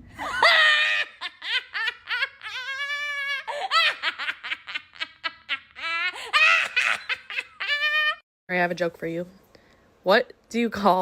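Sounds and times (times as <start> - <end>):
person giggling: 0.2 - 8.2.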